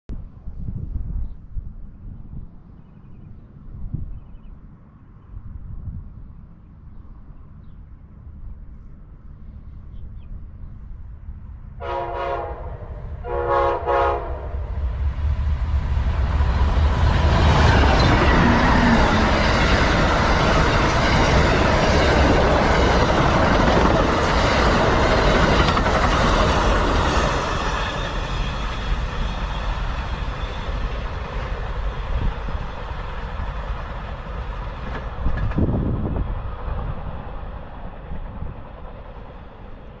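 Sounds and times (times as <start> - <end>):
train passing with rumble: 0.1 - 40.0
train horn blasts: 11.8 - 14.9.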